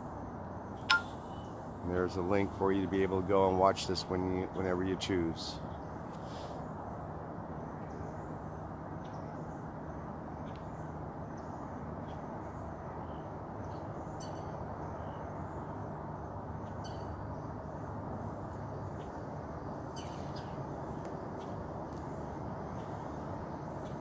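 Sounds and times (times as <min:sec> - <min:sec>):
bird chirps: 0:00.9 - 0:01.6.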